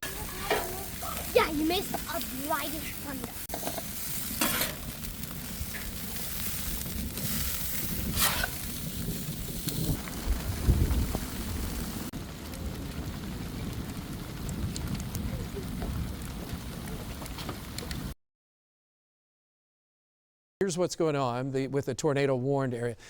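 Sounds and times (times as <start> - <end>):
burgers sizzling on grill: 0.0 - 18.1
rain falling: 0.0 - 18.2
low rumble: 4.8 - 18.1.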